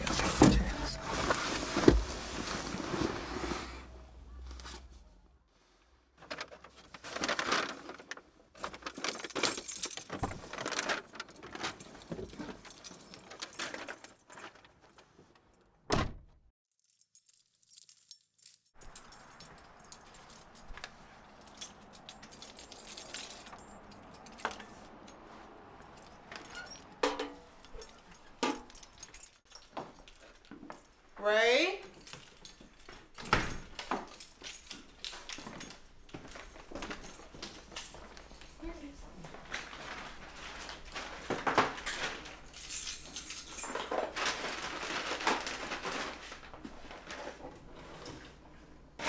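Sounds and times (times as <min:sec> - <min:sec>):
handling clicks and rustles: 0:06.2 - 0:15.8, 0:16.8 - 0:31.2, 0:31.8 - 0:48.4
keys jangling: 0:08.9 - 0:10.6, 0:16.8 - 0:31.2, 0:31.8 - 0:39.7, 0:40.9 - 0:44.2.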